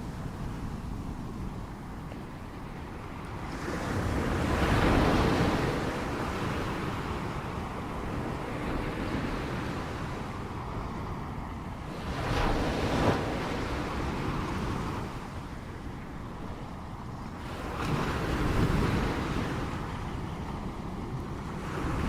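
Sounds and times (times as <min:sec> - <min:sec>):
ocean waves washing onto shore: 0:00.0 - 0:22.0.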